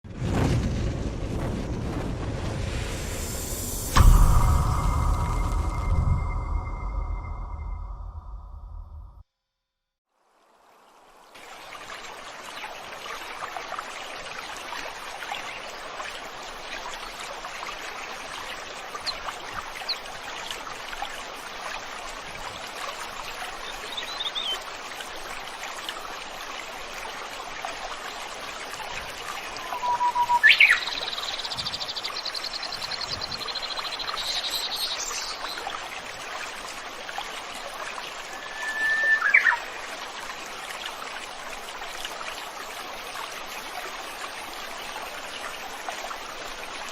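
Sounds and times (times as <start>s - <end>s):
stream flowing: 10.2s - 46.9s
bird call with rapid trill: 29.6s - 31.2s, 38.3s - 39.8s
birds chirping: 29.6s - 35.6s, 38.3s - 39.8s.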